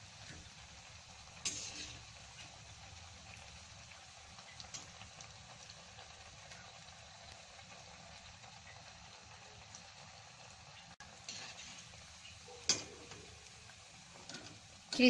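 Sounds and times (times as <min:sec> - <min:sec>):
food sizzling in hot oil: 0:00.0 - 0:15.0
metal utensil clicking against pan: 0:01.4 - 0:02.0, 0:12.6 - 0:13.3.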